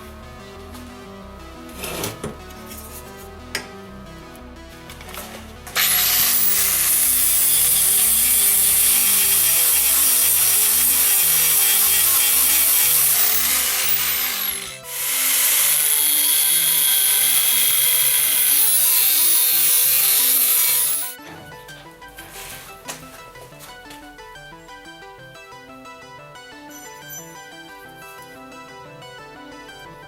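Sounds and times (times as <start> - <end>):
power tool grinding metal: 5.0 - 21.2.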